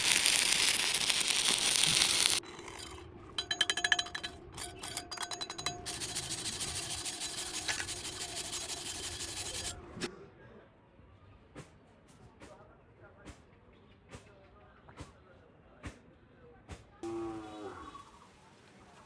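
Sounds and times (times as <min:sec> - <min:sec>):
wire brush scrubbing metal: 0:00.0 - 0:10.1.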